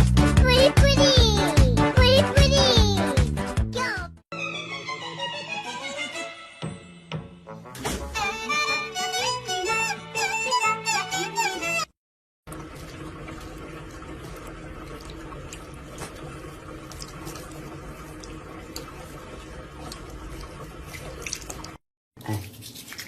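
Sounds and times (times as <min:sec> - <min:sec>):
tap running into sink: 0:12.5 - 0:21.8.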